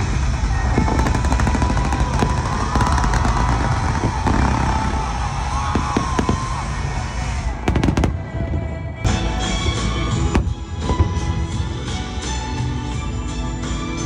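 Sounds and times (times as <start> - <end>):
fireworks bursting and crackling: 0.0 - 9.1, 10.1 - 12.0
deep rumble: 0.0 - 12.6
music playing: 0.0 - 14.0
loud firework bangs: 0.1 - 8.8, 10.1 - 11.6.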